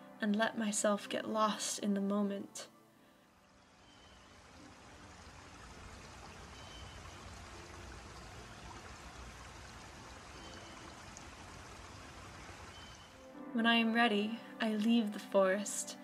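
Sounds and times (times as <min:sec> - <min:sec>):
stream water rushing: 0:03.4 - 0:13.2.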